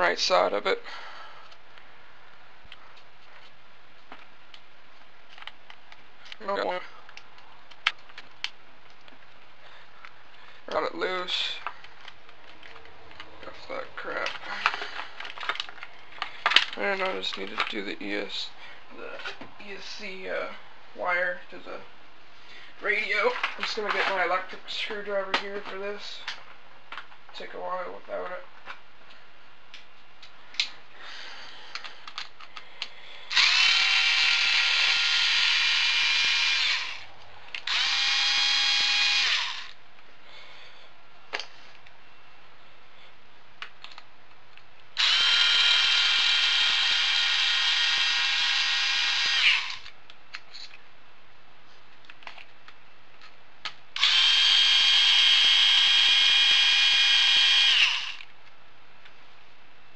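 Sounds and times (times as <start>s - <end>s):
electric screwdriver whining: 33.3s - 39.8s, 45.0s - 50.0s, 54.0s - 58.3s.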